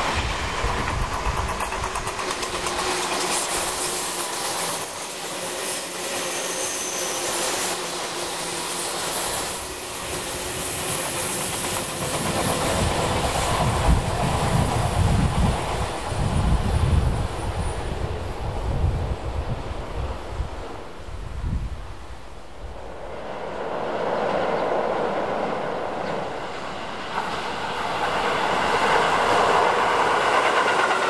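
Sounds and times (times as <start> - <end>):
wind buffeting microphone: 0.0 - 2.8, 10.4 - 31.0
train wheels clacking: 0.0 - 18.0, 24.0 - 31.0.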